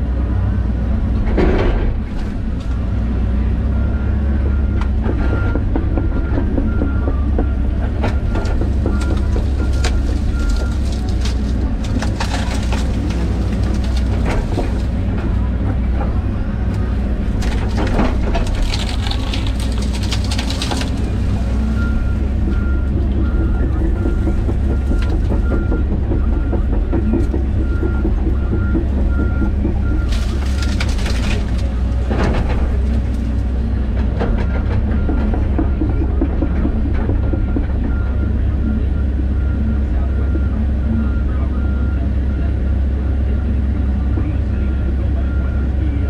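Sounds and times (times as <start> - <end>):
excavator diesel engine running: 0.0 - 46.0
wood cracking and knocking: 4.4 - 38.1.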